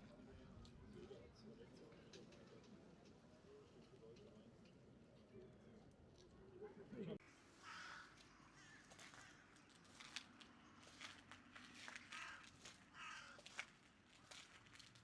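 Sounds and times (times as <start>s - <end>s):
quiet street ambience: 0.0s - 15.0s
faint scratchy footsteps: 8.9s - 15.0s.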